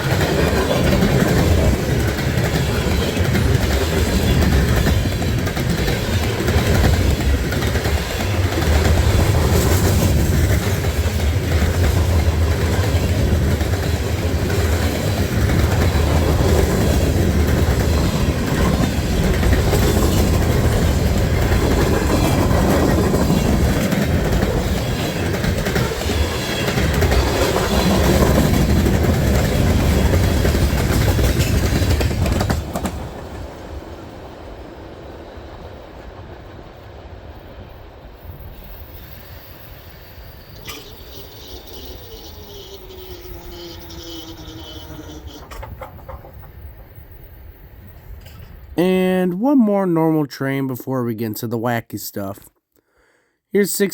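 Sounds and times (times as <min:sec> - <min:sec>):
train wheels clacking: 0:00.0 - 0:33.5, 0:40.6 - 0:47.0
freight train rolling past: 0:00.0 - 0:49.2.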